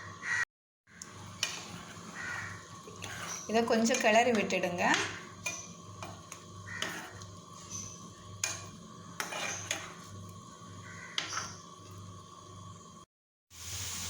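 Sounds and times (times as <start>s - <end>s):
spoon scraping and knocking pan: 1.2s - 12.2s.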